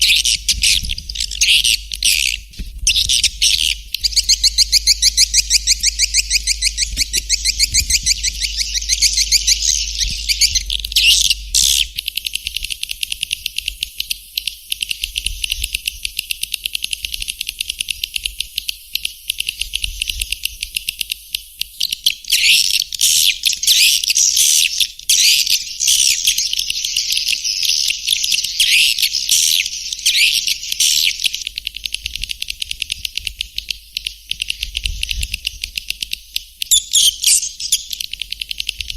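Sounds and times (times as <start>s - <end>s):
low hum: 0.0s - 12.7s
high twittering chirps and clicks: 0.0s - 38.9s.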